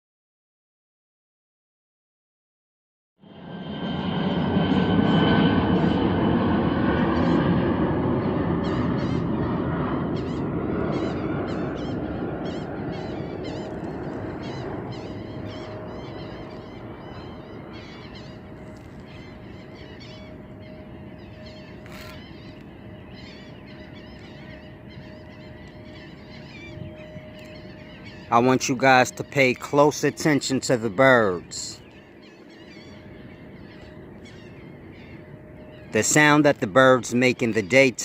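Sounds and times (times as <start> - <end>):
low rumble: 3.2 - 23.4
small birds chirping: 8.2 - 38.0.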